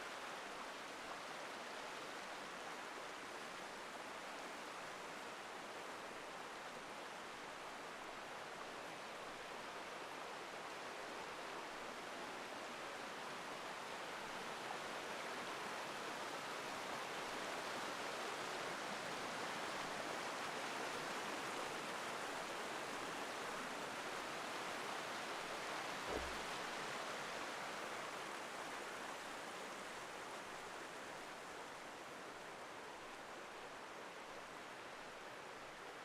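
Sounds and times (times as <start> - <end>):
stream rushing over rocks: 0.0 - 36.0
low thump: 26.1 - 26.4.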